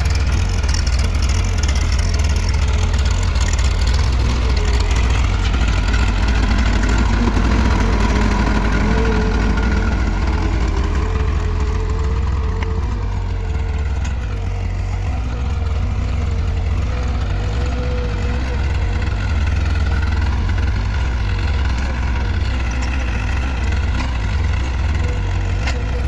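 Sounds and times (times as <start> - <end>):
tractor engine droning: 0.0 - 26.0.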